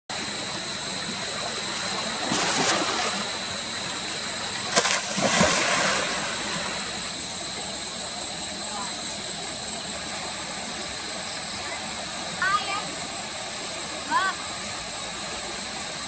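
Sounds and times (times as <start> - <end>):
steady hiss: 0.1 - 16.0
water splashing: 1.0 - 12.7.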